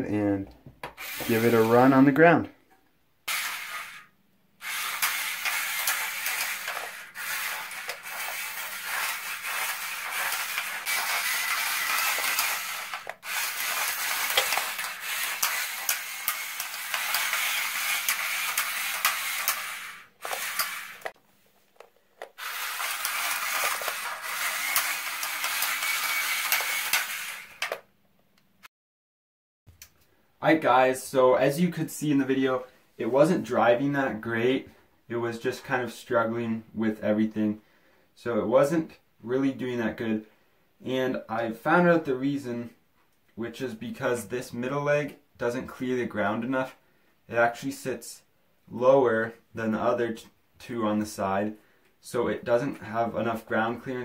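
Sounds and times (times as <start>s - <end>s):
robot legs scraping and clattering: 5.0s - 27.8s.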